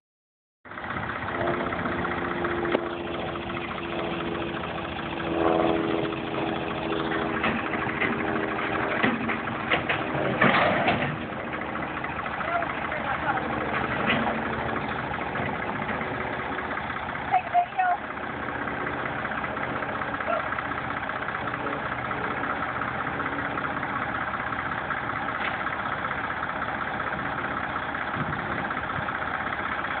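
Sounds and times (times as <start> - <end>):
tractor engine running: 0.6 - 30.0
sharp knocks and clatters: 7.1 - 11.9, 13.7 - 16.0.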